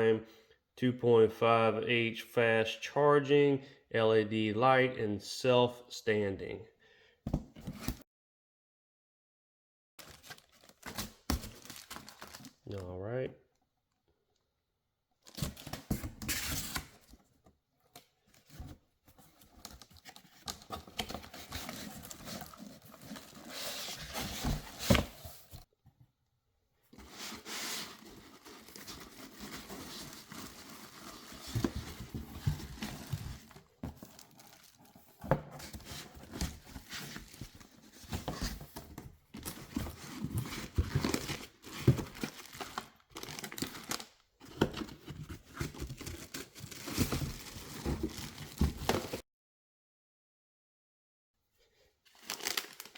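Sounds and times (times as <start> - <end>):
cardboard rustling: 10.0 - 12.6, 15.3 - 25.7, 26.9 - 49.2
paper and plastic crinkling: 10.0 - 12.6, 19.2 - 25.7, 27.0 - 38.8, 39.4 - 49.2, 52.1 - 52.9.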